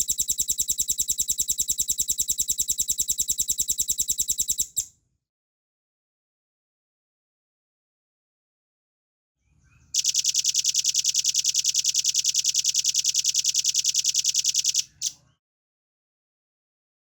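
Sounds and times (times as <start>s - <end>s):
bird rattling trill: 0.0s - 4.8s.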